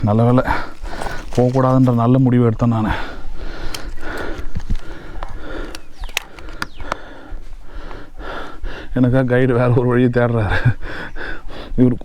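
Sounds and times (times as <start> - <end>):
footsteps crackling on trail: 0.0 - 11.4
person breathing hard: 0.4 - 1.4, 2.8 - 9.1, 10.5 - 11.8.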